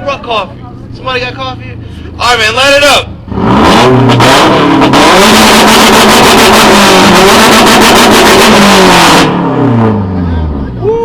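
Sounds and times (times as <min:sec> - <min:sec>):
rapid exhaust crackle: 0:00.1 - 0:10.8
car engine revving hard: 0:03.2 - 0:10.7.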